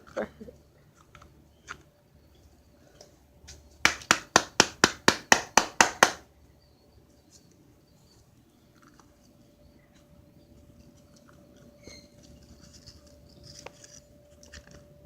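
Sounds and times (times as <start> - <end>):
sharp knocks or claps: 3.8 - 6.2.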